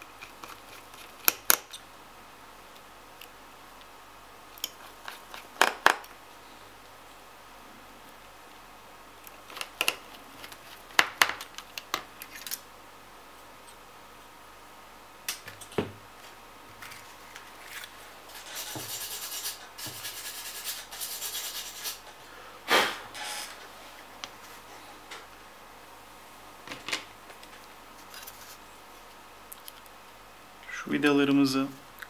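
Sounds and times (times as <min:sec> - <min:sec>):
high scratching and rubbing: 0:16.9 - 0:22.1.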